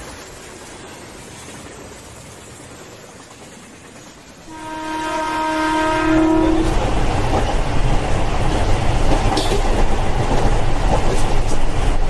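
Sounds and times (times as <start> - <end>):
train running deep rumble: 0.0 - 12.0
train horn: 4.5 - 6.9.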